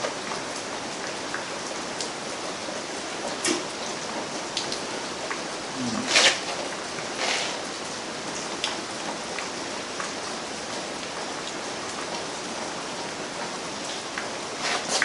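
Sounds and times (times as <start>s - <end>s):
steady rain: 0.0s - 15.0s
light drip ticks: 0.3s - 2.2s, 3.4s - 5.4s, 8.4s - 10.2s.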